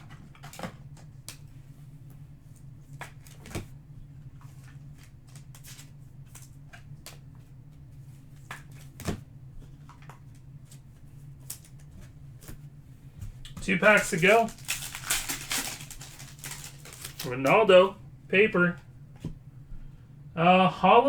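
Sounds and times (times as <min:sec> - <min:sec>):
cards rustling: 0:04.4 - 0:07.3, 0:13.5 - 0:18.7
cards tapping down: 0:13.5 - 0:17.6.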